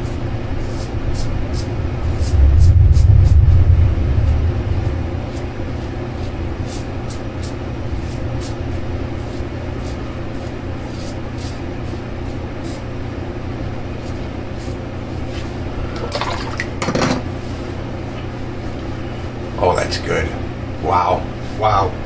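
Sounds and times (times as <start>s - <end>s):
steady low hum: 0.0s - 22.0s
low rumble: 0.3s - 10.2s.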